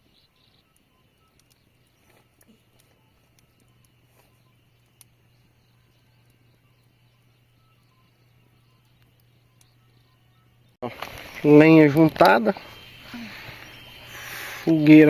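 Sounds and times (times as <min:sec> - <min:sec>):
faint low hum: 0:00.0 - 0:15.0
soft clicks: 0:00.7 - 0:01.6, 0:02.2 - 0:05.2.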